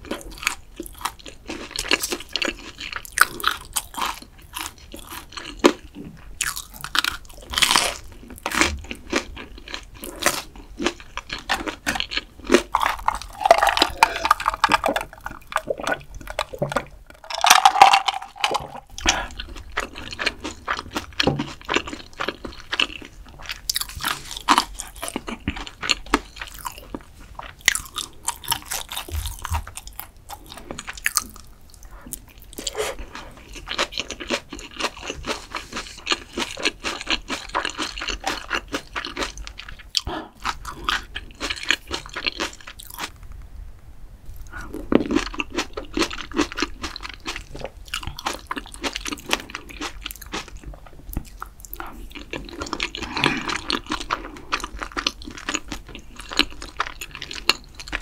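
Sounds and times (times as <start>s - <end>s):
food crunching and chewing: 0.0s - 43.2s, 44.3s - 58.0s
swallowing cola: 12.9s - 19.4s.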